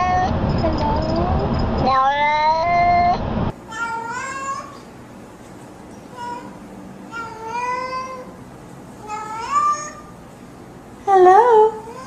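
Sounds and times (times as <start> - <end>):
cat meowing: 1.8 - 3.2.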